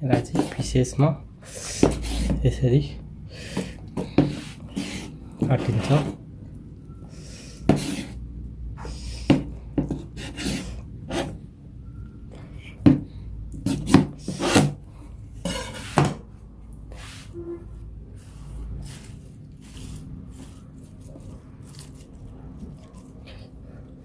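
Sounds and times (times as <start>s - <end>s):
knife cutting on a cutting board: 0.1s - 0.6s, 1.7s - 2.4s, 3.5s - 6.2s, 7.6s - 8.2s, 9.2s - 11.4s, 13.6s - 14.8s, 15.4s - 16.2s, 18.2s - 22.1s.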